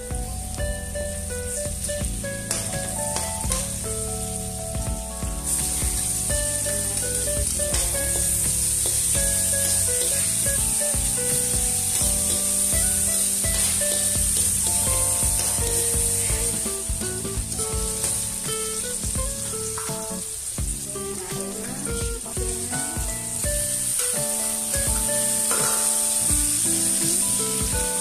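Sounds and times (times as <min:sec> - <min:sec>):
onion and garlic sizzling in a wok: 0:00.0 - 0:04.8, 0:05.4 - 0:28.0
background music: 0:00.0 - 0:28.0.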